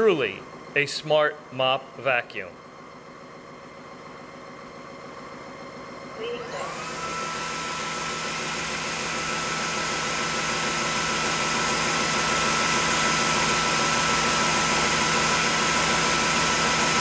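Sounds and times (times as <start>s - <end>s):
vacuum motor whining: 2.8s - 17.0s.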